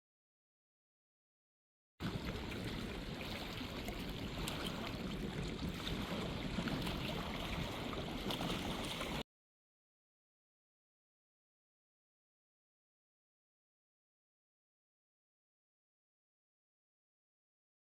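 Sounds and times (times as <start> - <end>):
wind and rain on microphone: 2.0 - 9.2.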